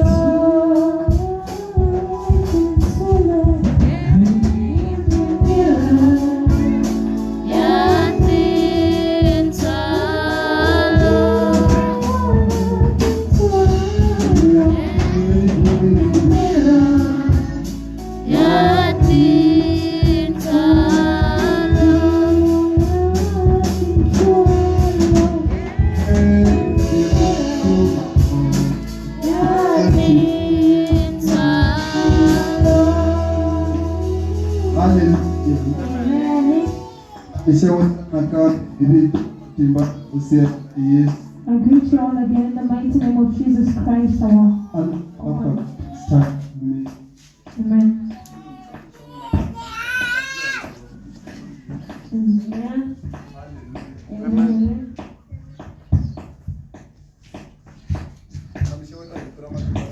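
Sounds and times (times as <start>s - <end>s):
percussive beat and bass: 0.0s - 41.4s
voices singing gospel song: 0.0s - 55.2s.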